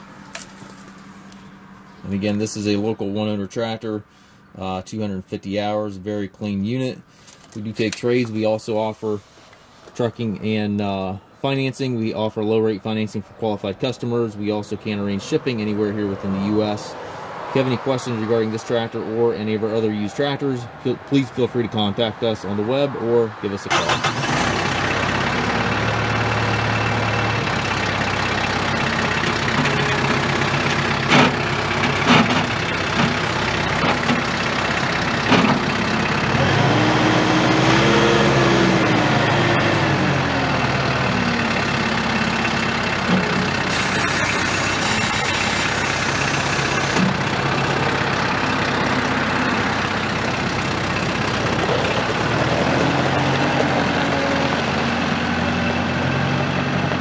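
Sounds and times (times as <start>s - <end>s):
tractor diesel engine running: 0.0s - 4.4s, 23.7s - 57.0s.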